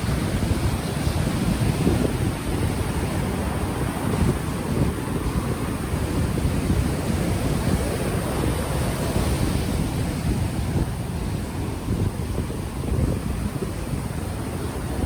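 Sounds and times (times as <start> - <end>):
ocean waves washing ashore: 0.0 - 15.0
wind buffeting microphone: 0.0 - 15.0.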